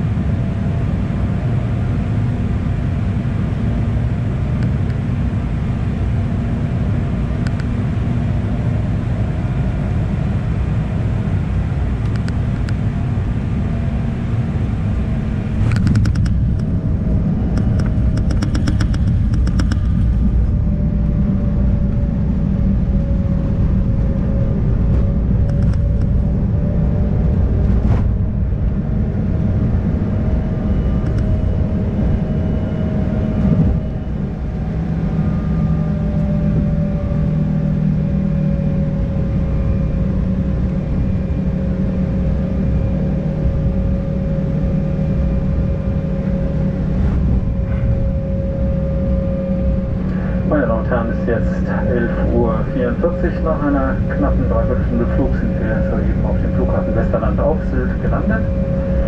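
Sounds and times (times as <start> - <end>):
jet engine and airflow rumble: 0.0 - 59.0
thin engine whine: 0.0 - 59.0
rattles and knocks: 17.5 - 20.0.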